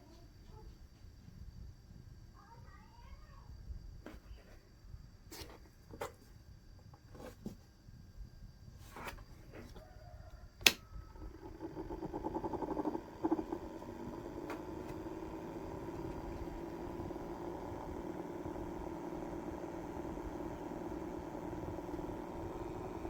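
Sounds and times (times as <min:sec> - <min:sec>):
small electric fan motor humming: 0:08.9 - 0:23.0
sharp click: 0:10.6 - 0:10.8.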